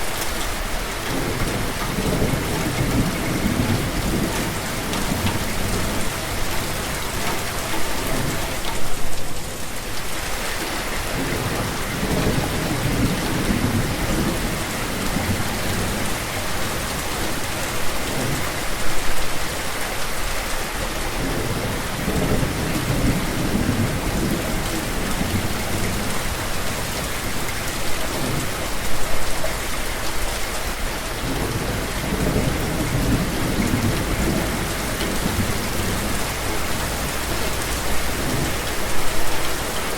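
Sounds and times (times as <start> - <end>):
heavy rain: 0.0 - 39.9
thunder rumbling: 31.2 - 39.9.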